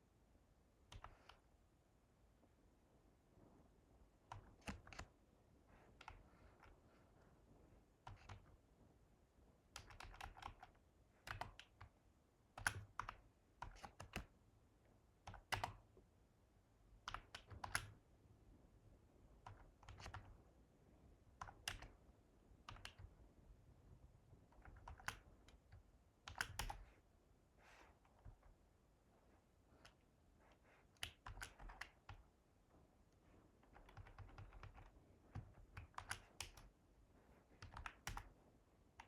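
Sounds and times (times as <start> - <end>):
faint keyboard typing: 0.8 - 1.6, 4.1 - 8.7, 9.6 - 14.4, 15.2 - 16.1, 16.9 - 18.1, 19.3 - 39.0.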